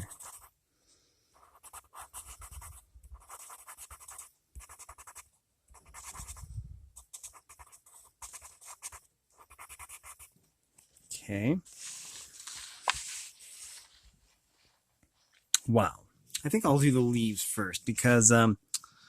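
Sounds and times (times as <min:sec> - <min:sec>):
pencil scratching on paper: 0:00.0 - 0:00.6, 0:01.4 - 0:10.3.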